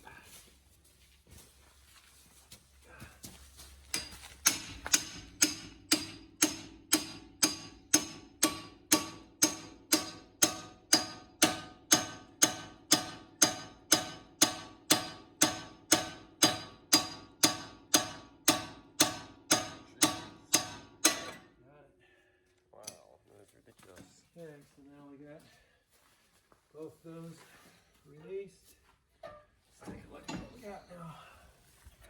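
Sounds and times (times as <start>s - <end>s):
hammer striking metal fork: 3.9s - 21.5s.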